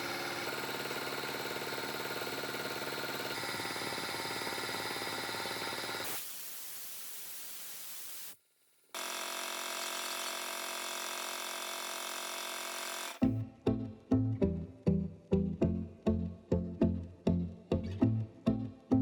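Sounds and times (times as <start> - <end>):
electric motor humming: 0.0 - 6.1, 9.0 - 13.2
hiss: 5.2 - 8.4.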